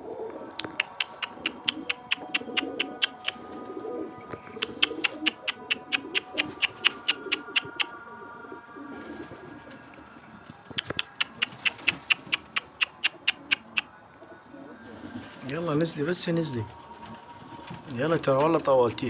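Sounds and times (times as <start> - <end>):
pigeons cooing: 0.0 - 18.7
sharp ticks: 0.5 - 3.5, 4.4 - 8.0, 10.7 - 13.9.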